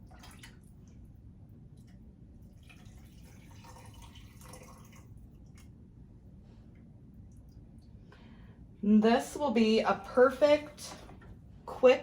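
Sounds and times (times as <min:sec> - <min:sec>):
liquid pouring into jars: 0:02.4 - 0:05.8.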